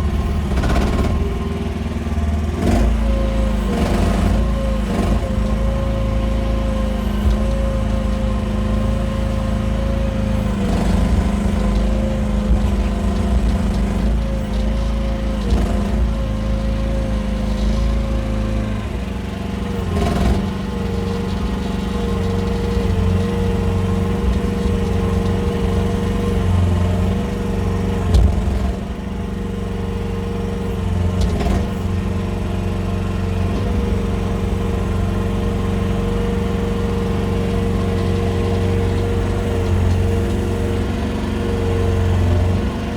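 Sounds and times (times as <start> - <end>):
mini excavator engine running: 0.0 - 42.9
sharp knocks: 28.0 - 29.1.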